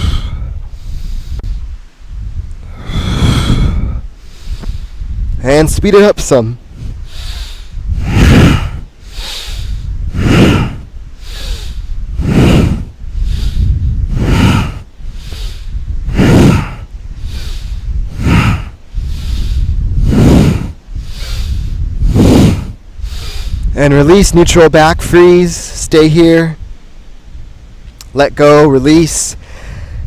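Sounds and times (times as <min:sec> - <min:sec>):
person breathing hard: 0:00.0 - 0:05.4, 0:06.6 - 0:23.8, 0:29.4 - 0:30.0.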